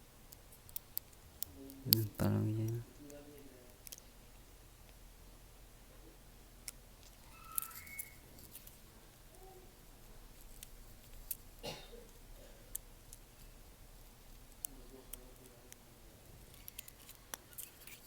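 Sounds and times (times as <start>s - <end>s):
high whistle-like tone: 7.3s - 8.3s.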